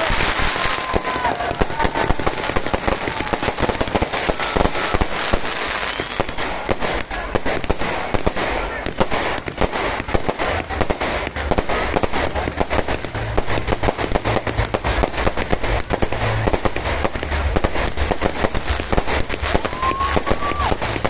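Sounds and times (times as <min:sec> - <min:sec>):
fireworks bangs and crackles: 0:00.0 - 0:21.0
low rumble: 0:10.6 - 0:21.0.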